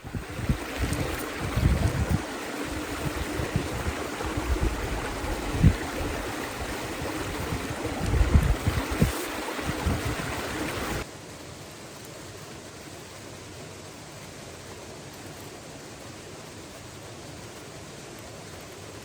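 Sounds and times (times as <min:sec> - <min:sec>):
wind buffeting microphone: 0:00.0 - 0:11.0
creek water rushing: 0:00.0 - 0:19.0.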